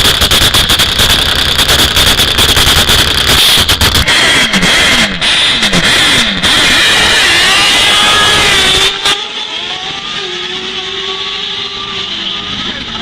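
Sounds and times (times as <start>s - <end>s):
motorcycle engine at full throttle: 0.0s - 13.0s.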